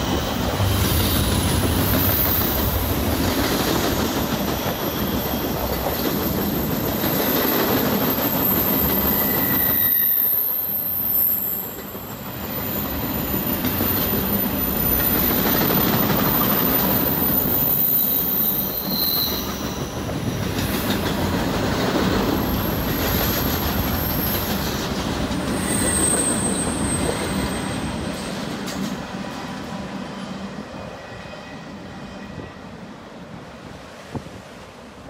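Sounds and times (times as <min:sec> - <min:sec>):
train wheels rumbling and rattling: 0:00.0 - 0:31.0
wheel squeal: 0:08.4 - 0:11.8, 0:12.5 - 0:20.0, 0:25.5 - 0:27.9.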